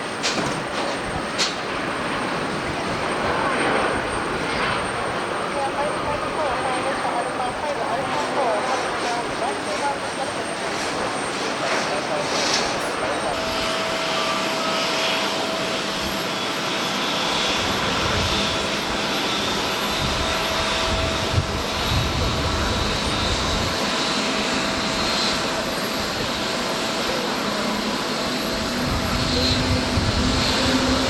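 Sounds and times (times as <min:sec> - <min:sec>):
jet engines rushing and whining: 0:00.0 - 0:31.0
wind rumbling on microphone: 0:17.4 - 0:26.6, 0:28.1 - 0:31.0.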